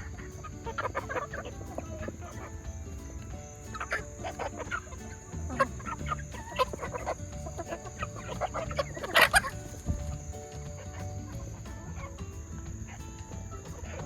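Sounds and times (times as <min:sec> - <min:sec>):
chickens clucking: 0:00.0 - 0:14.0
loud chicken call: 0:05.8 - 0:09.8.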